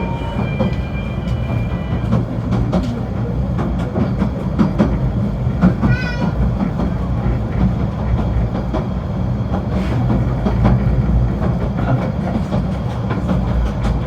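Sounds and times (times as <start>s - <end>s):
high wavering squeal: 0.0s - 2.2s
train rumbling with clanks: 0.0s - 14.0s.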